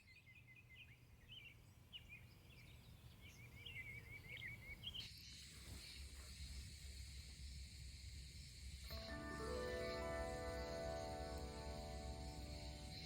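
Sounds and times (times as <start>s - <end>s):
small birds chirping: 0.0s - 13.0s
steady high hiss: 4.7s - 13.0s.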